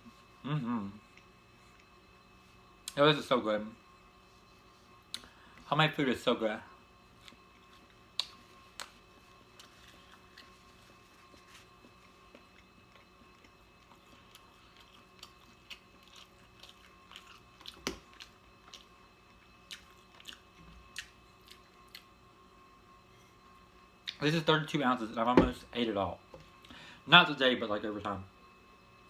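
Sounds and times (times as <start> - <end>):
chewing mouth sounds: 7.2 - 22.1.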